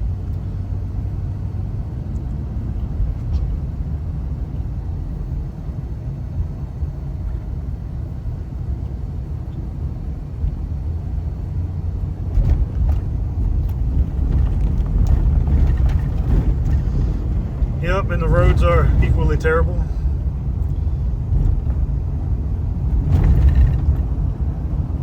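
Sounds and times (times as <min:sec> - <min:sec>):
car road and engine rumble: 0:00.0 - 0:25.0
knocks and jolts from rough road: 0:12.0 - 0:25.0.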